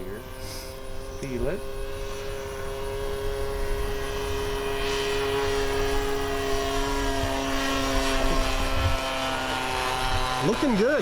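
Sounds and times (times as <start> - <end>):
model airplane engine droning: 0.0 - 11.0.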